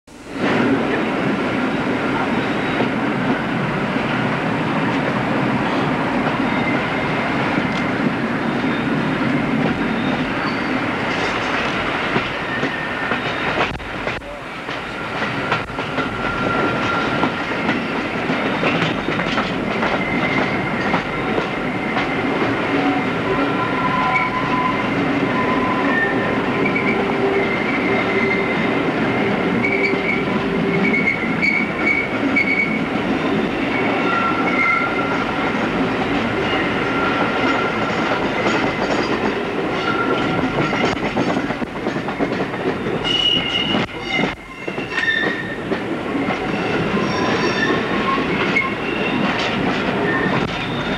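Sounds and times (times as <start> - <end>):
train wheels rumbling on rails: 0.1 - 50.9
wheels squealing: 9.8 - 10.8, 46.2 - 50.9.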